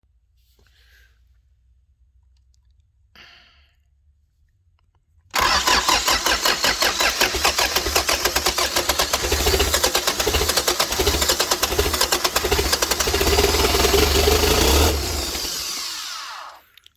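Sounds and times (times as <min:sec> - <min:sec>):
diesel engine starting and running: 0:05.4 - 0:16.8.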